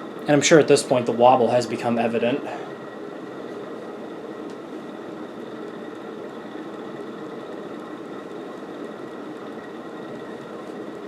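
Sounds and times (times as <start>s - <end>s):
ceiling fan bearings rumbling: 0.0s - 11.0s
rush of air from fan blades: 0.0s - 11.0s.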